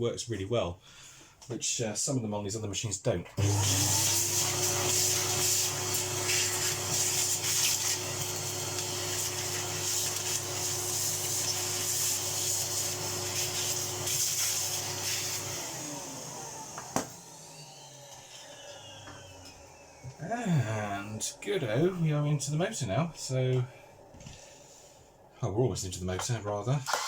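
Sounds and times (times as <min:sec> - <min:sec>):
vacuum motor winding down: 0:03.4 - 0:22.2
vacuum cleaner running: 0:03.4 - 0:25.3.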